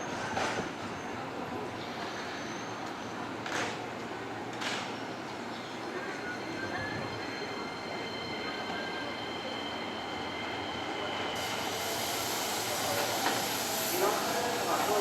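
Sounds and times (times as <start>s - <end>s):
train wheels squealing: 1.8s - 3.2s, 5.0s - 15.0s
train rumble: 4.5s - 15.0s
high hiss: 11.4s - 15.0s.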